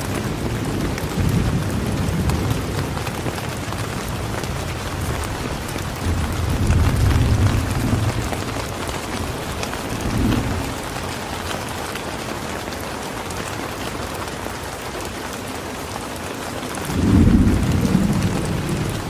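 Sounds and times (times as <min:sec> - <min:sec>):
steady rain falling: 0:00.0 - 0:19.0
low rumbles of thunder: 0:00.1 - 0:11.2, 0:16.9 - 0:19.0.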